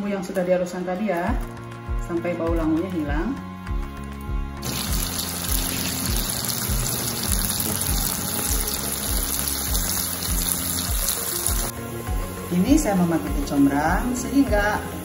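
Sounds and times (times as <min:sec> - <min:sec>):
music with steady beat: 0:01.3 - 0:15.0
spice paste sizzling in oil: 0:04.6 - 0:15.0.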